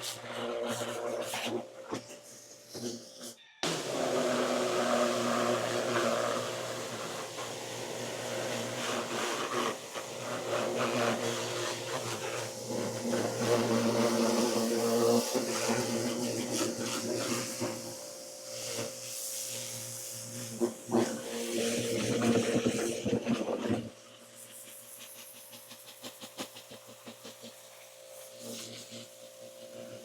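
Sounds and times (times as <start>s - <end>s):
pressure washer motor hum: 3.6s - 23.0s.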